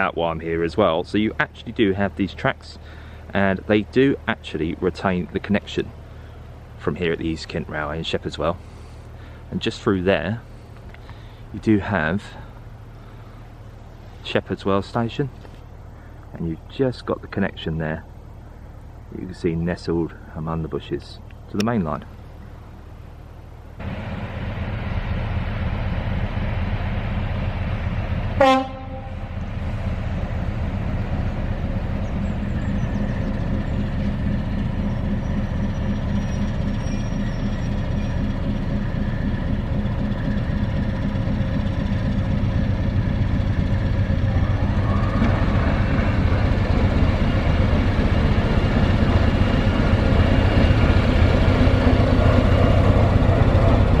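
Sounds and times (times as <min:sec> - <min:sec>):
locomotive diesel engine throbbing: 0:00.0 - 0:54.0
locomotive horn blast: 0:28.4 - 0:29.4.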